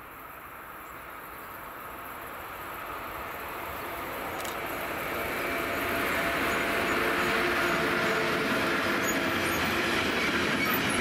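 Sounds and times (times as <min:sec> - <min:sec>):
freight train running: 0:00.0 - 0:11.0.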